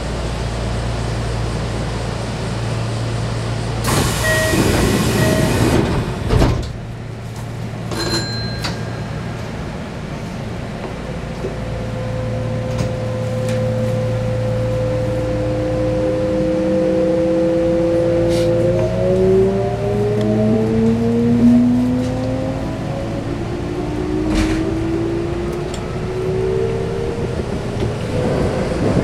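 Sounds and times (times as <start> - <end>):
train doors hissing: 3.8 - 6.9, 18.3 - 18.6
short electronic tone: 4.2 - 5.7
door chime beeps: 4.2 - 5.8, 8.0 - 9.3.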